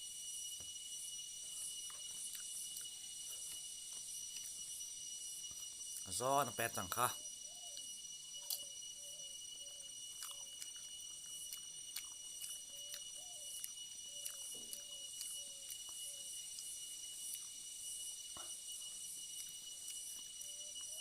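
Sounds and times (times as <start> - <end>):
chewing vegetables: 1.7 - 4.6, 8.4 - 8.7, 10.1 - 21.0
mouth clicks: 10.2 - 16.7.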